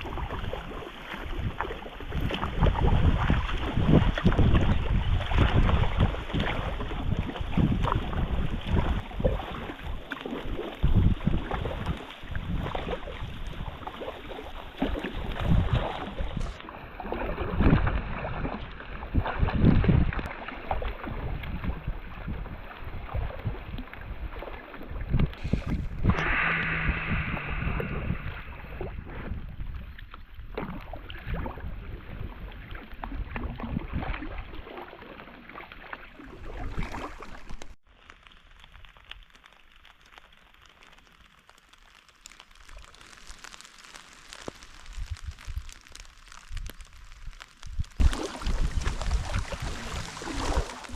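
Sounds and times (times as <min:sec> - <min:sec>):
wind buffeting microphone: 0:00.0 - 0:10.0, 0:10.8 - 0:13.9, 0:15.1 - 0:16.6, 0:17.2 - 0:20.2, 0:21.0 - 0:34.4, 0:47.7 - 0:50.9
rain hissing: 0:16.2 - 0:16.6, 0:25.4 - 0:29.0, 0:38.4 - 0:50.9.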